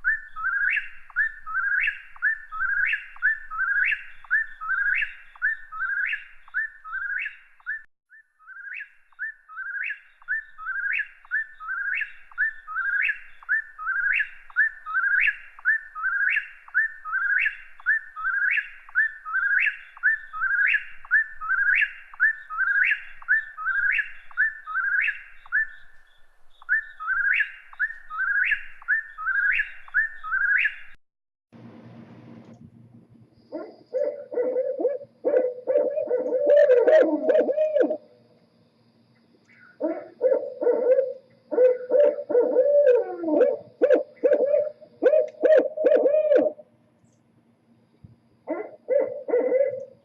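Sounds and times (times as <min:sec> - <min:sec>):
songbird whistling song: 0:00.0 - 0:31.0, 0:39.4 - 0:46.6.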